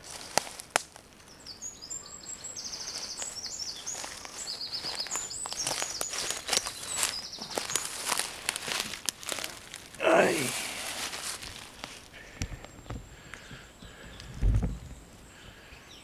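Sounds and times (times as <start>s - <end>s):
footsteps in undergrowth: 0.0s - 14.3s
songbird trilling: 1.4s - 8.3s.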